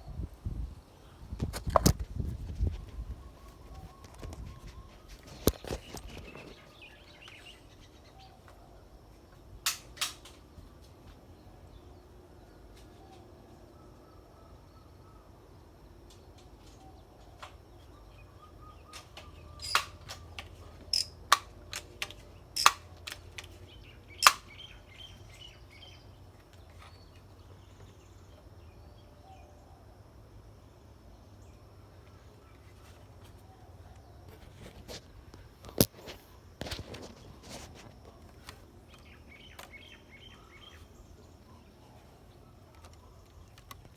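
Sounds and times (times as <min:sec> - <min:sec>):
faint bird chirping: 0:02.2 - 0:09.6, 0:10.4 - 0:21.3, 0:23.4 - 0:43.9
sharp clicks and snaps: 0:18.9 - 0:23.5, 0:24.2 - 0:24.5.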